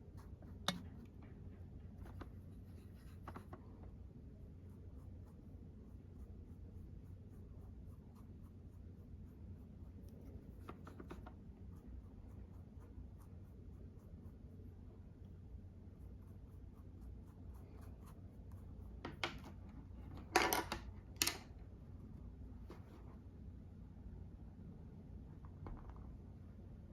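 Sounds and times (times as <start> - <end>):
makeup brush scratching and rubbing: 0.0 - 20.1
low steady hum: 0.0 - 26.9.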